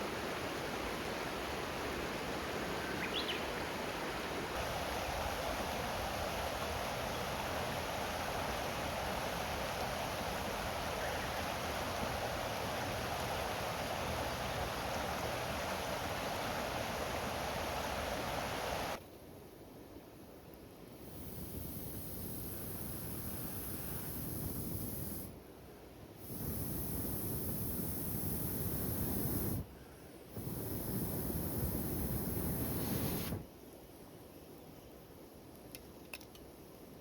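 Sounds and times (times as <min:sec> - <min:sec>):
flowing water rushing: 0:00.0 - 0:19.0.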